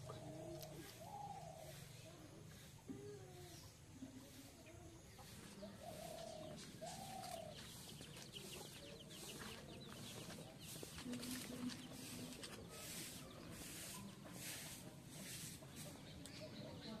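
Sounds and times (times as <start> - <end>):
faint drawn-out bird calls: 5.6 - 9.6.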